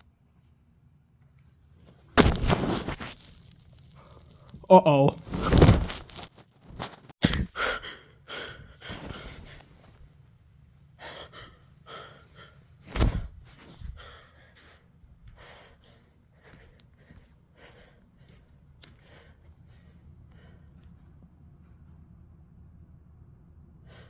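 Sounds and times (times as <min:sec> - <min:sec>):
person breathing hard and gasping: 0:07.2 - 0:09.7, 0:11.0 - 0:20.8.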